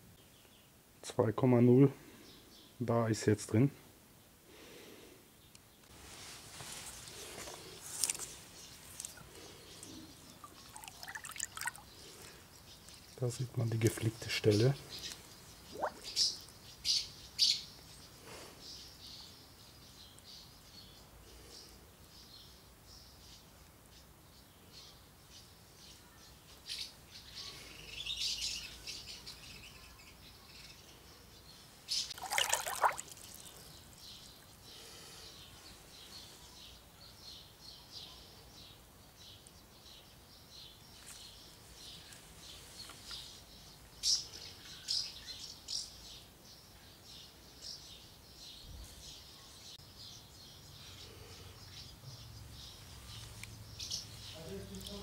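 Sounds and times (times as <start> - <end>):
birds chirping and singing: 7.0 - 23.4, 24.3 - 55.0.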